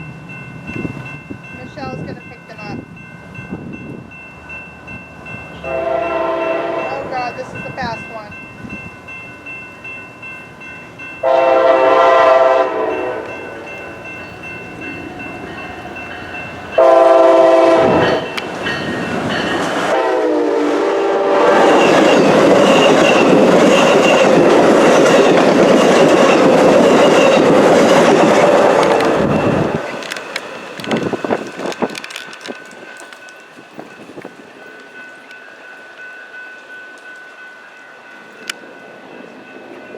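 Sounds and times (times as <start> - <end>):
train wheel and rail noise: 0.0 - 39.9
train air horn blasts: 5.6 - 7.2, 11.2 - 13.4, 16.8 - 18.3, 19.9 - 22.0.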